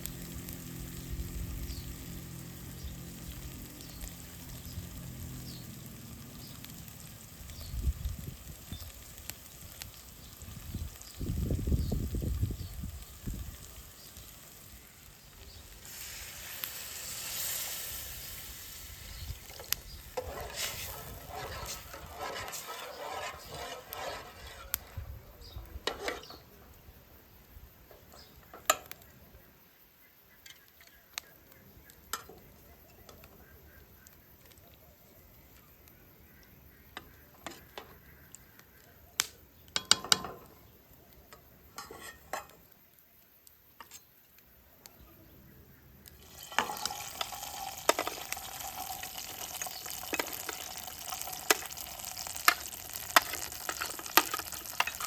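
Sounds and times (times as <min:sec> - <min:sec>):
food sizzling in a pan: 0:00.0 - 0:26.5, 0:46.2 - 0:55.0.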